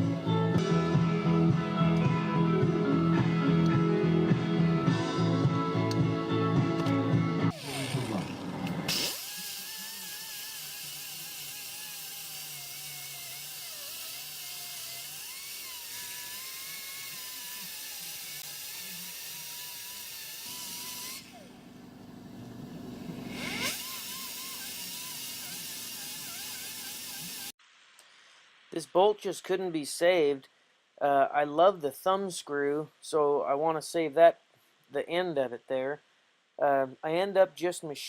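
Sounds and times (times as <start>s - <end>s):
power tool hissing: 7.5s - 27.6s.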